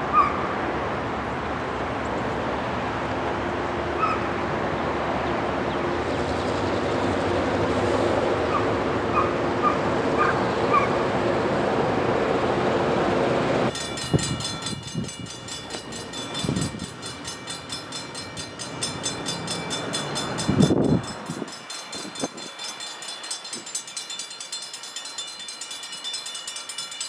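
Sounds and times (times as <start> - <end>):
diesel locomotive engine drone: 0.0 - 27.0
crossing warning bell ringing: 13.7 - 27.0.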